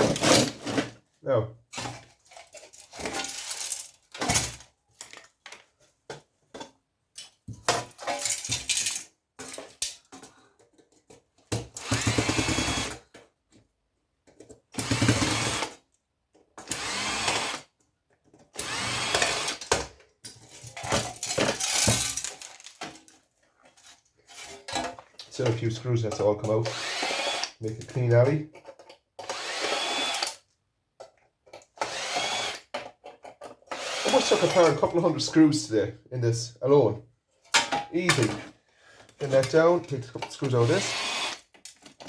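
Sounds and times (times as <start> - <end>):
clicks and clatter of parts: 1.7 - 12.4, 18.1 - 26.8, 27.4 - 29.4, 31.0 - 34.9, 37.4 - 42.0
power drill whining: 11.8 - 13.0, 14.8 - 15.7, 16.7 - 17.6, 18.6 - 19.6, 26.6 - 27.6, 29.2 - 30.4, 31.8 - 32.7, 33.7 - 34.8, 40.6 - 41.5.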